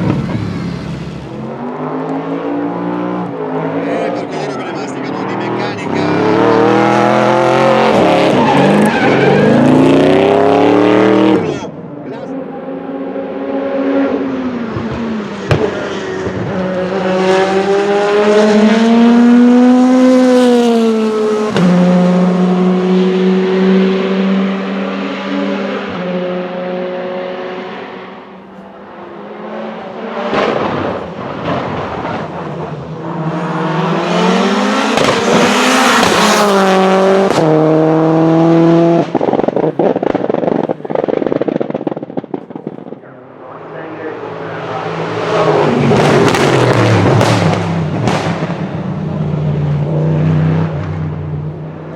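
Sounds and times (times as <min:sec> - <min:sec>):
race car engine at high revs: 0:00.0 - 0:51.9
exhaust pops and crackles: 0:14.7 - 0:16.6, 0:30.3 - 0:32.7, 0:34.9 - 0:36.2, 0:39.0 - 0:43.2, 0:46.0 - 0:48.8.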